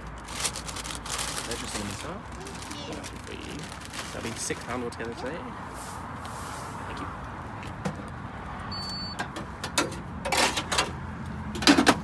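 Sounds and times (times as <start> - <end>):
payment terminal beep: 8.7 - 9.2.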